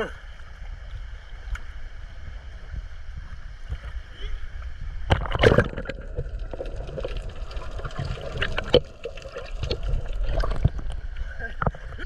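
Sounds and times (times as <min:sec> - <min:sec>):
seawater sloshing and splashing: 0:05.2 - 0:10.9.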